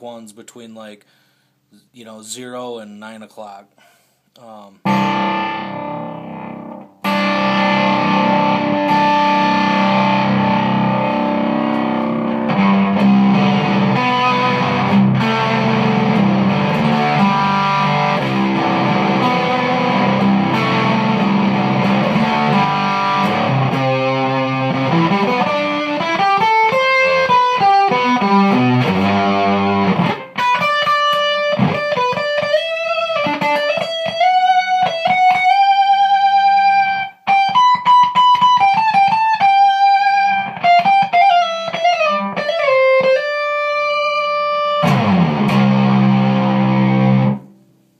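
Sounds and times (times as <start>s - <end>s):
fuzz electric guitar: 4.8s - 47.5s.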